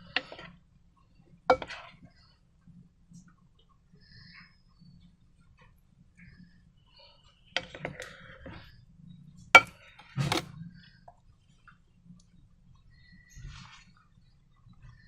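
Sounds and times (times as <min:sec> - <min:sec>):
hard objects clicking and knocking: 0:01.5 - 0:02.0, 0:09.4 - 0:10.6.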